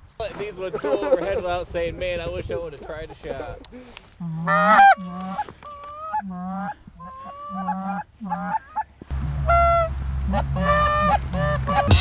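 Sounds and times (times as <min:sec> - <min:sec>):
geese honking: 0:00.7 - 0:01.6, 0:04.2 - 0:12.0.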